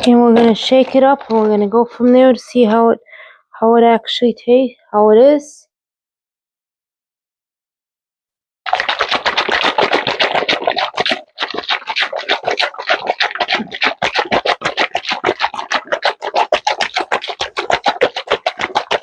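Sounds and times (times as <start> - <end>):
salad dressing shaken in container: 0.0 - 2.2, 8.7 - 19.0.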